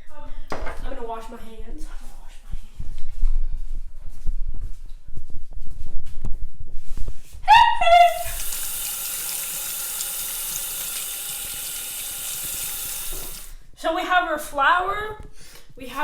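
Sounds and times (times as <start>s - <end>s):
water running into a sink: 8.0s - 13.6s.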